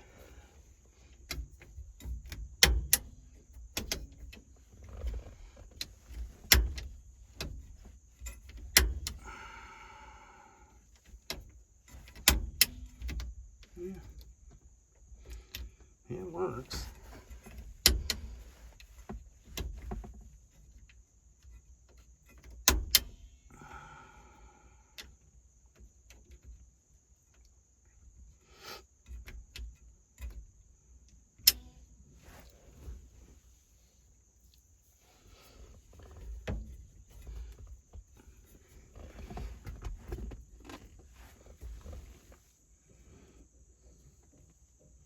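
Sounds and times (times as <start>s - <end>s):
hands clicking on steering column: 1.2s - 9.6s, 10.9s - 14.6s, 16.5s - 23.6s, 35.5s - 42.4s.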